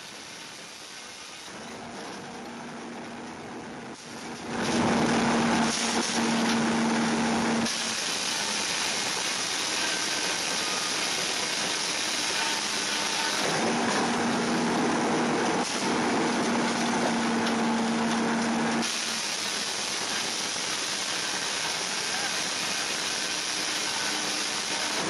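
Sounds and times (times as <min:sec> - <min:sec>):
steam hiss: 0:00.0 - 0:01.6, 0:04.0 - 0:25.0
low machine hum: 0:01.5 - 0:18.9.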